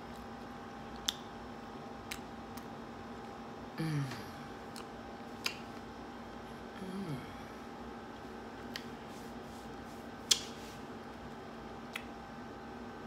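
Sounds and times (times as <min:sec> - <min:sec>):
low room hum: 0:00.0 - 0:13.0
wet mouth clicks: 0:01.0 - 0:01.3, 0:04.7 - 0:05.7, 0:10.2 - 0:10.5, 0:11.9 - 0:12.2
person humming: 0:03.8 - 0:04.5, 0:06.7 - 0:07.6.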